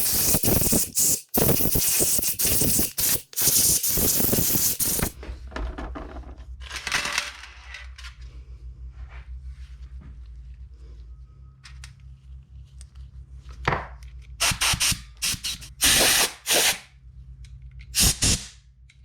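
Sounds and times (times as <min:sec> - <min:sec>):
hissing spray: 0:00.0 - 0:05.2.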